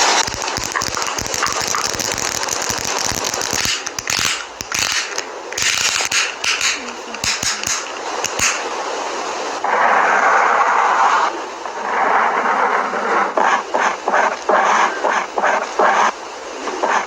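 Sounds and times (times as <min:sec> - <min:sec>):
makeup products clicking and tapping: 0:03.4 - 0:08.7.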